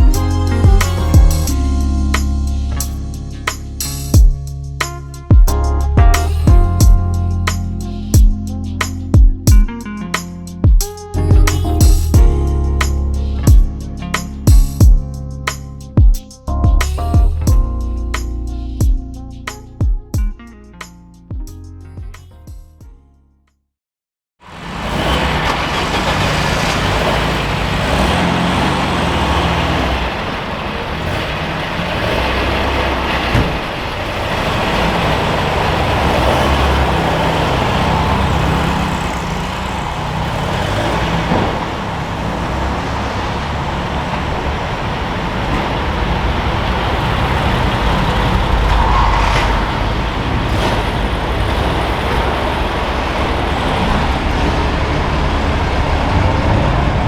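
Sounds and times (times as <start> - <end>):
car engine running: 0.0 - 10.0, 24.5 - 57.0.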